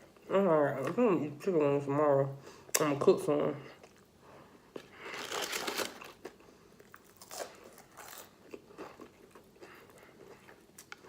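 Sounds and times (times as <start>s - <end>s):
chewing with crunches: 4.7s - 11.0s.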